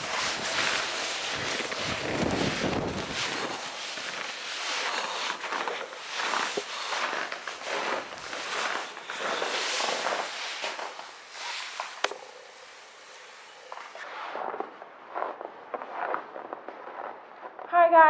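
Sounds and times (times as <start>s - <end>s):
footsteps crunching through snow: 0.0s - 14.0s.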